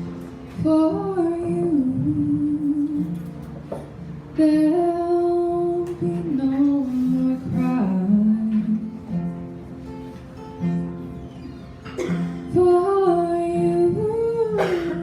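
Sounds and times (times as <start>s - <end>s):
woman singing: 0.5s - 3.4s, 4.4s - 9.2s, 12.5s - 15.0s.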